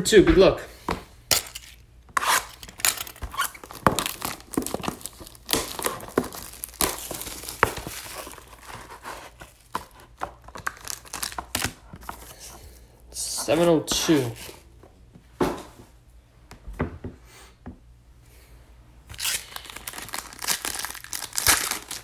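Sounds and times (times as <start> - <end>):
wrapping tearing and crinkling: 1.4 - 12.6, 19.1 - 22.0.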